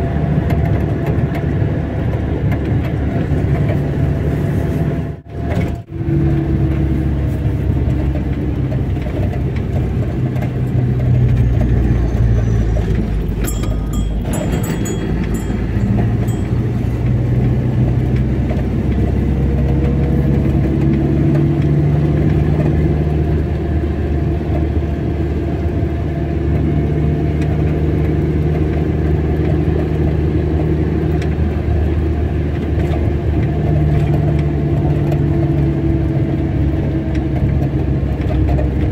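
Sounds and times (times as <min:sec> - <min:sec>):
road and tyre noise: 0:00.0 - 0:38.9
car engine running: 0:00.8 - 0:25.9.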